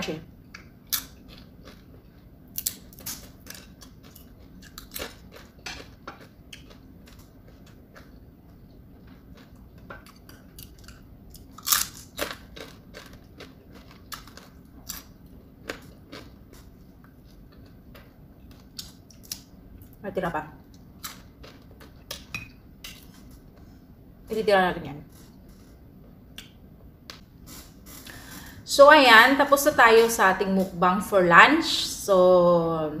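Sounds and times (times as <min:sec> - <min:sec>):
mouth chewing crispy fried fish: 0:00.5 - 0:08.2, 0:09.0 - 0:19.5.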